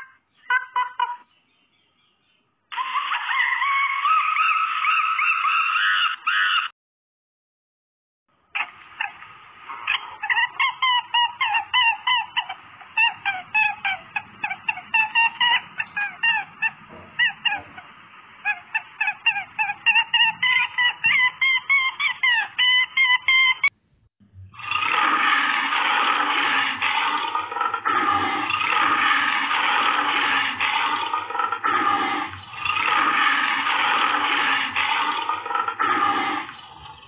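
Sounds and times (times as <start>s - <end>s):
flock of fowl honking: 10.0s - 23.7s.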